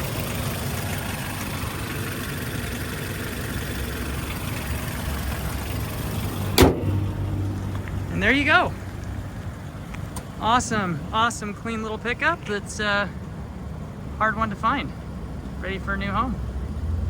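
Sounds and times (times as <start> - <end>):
car engine idling: 0.0 - 17.0
loud slam: 6.5 - 7.3.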